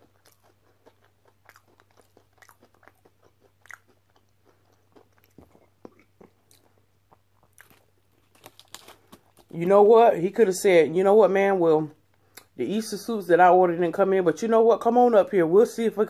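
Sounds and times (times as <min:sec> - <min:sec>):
person chewing food: 0:00.0 - 0:09.6.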